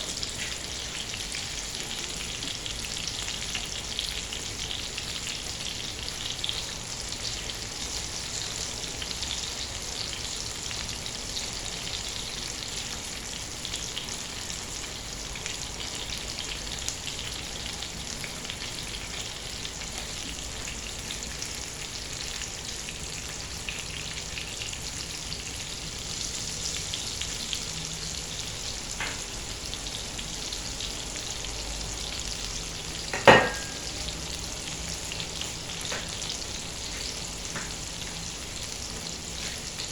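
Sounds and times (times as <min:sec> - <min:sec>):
chicken sizzling in a pan: 0:00.0 - 0:39.9.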